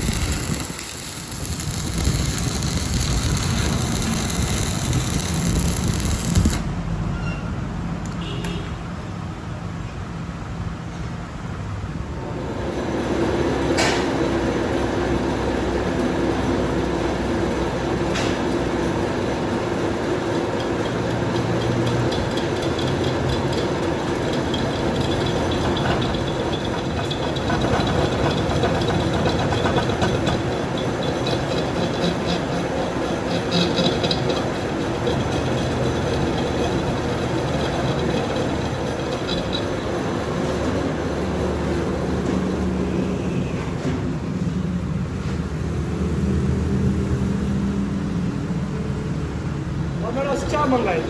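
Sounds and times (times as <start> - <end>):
workshop machine humming: 0.0 - 6.8.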